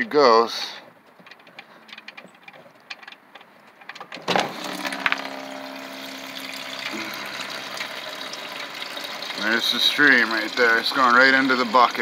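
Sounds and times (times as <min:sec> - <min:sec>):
oil dripping: 0:01.2 - 0:12.0
oil pouring into a bucket: 0:04.4 - 0:12.0.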